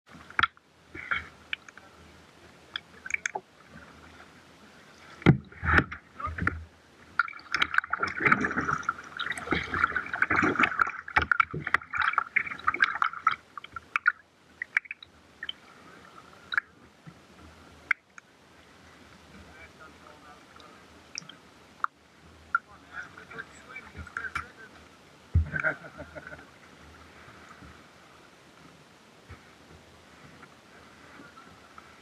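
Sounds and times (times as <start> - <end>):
water splashing and gurgling: 0.1 - 24.7, 25.3 - 32.0
low knocks: 25.3 - 25.6.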